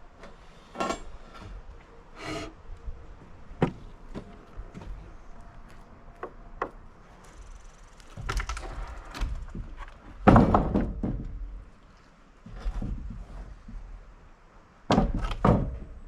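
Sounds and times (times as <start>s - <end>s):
wooden slabs knocking and thudding: 3.6s - 5.0s, 8.1s - 11.7s, 12.4s - 14.0s, 14.9s - 16.0s.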